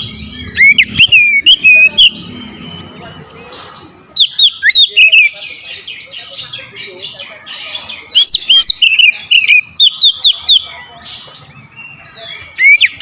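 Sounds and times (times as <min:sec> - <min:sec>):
songbird whistling: 0:00.0 - 0:06.4, 0:07.9 - 0:10.8.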